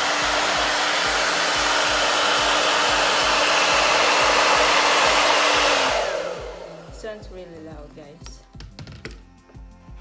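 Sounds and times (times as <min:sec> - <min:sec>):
hair dryer running: 0:00.0 - 0:08.0.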